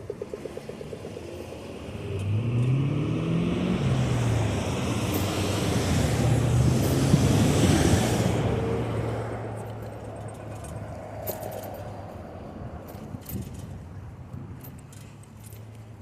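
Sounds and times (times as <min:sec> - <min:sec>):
road and tyre noise: 0:00.0 - 0:16.0
car passing by: 0:01.1 - 0:09.9.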